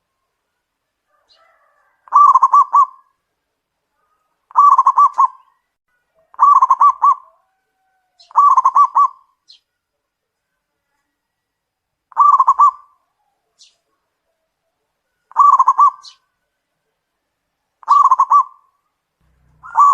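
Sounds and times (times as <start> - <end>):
dove cooing: 1.1 - 3.2, 4.5 - 5.6, 6.2 - 9.3, 12.1 - 13.4, 15.3 - 16.3, 17.8 - 18.7, 19.6 - 19.9.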